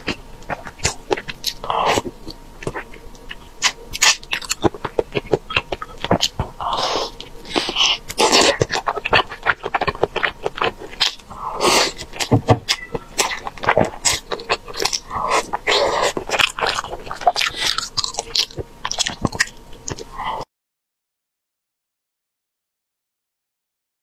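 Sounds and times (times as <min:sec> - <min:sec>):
wet chewing and biting: 0:00.0 - 0:20.4.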